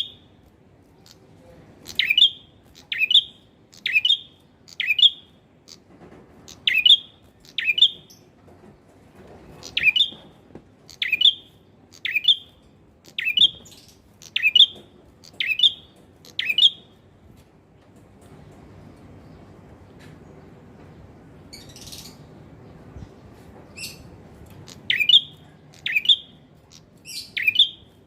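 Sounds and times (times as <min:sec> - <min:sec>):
bird chirping call: 0:01.0 - 0:08.3, 0:09.5 - 0:17.0, 0:21.5 - 0:28.0.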